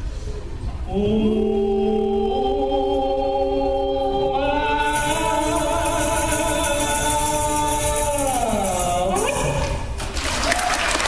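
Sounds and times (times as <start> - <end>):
high shimmering rattle: 4.8 - 9.5.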